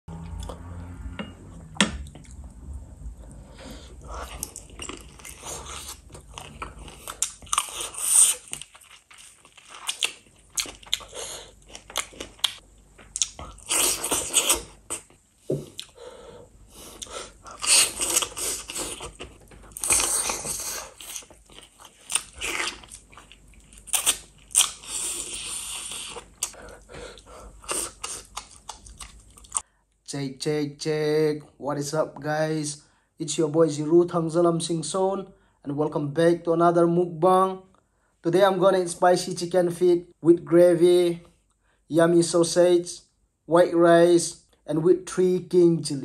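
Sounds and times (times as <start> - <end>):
chewing and crunching: 4.0 - 16.0, 17.0 - 29.6.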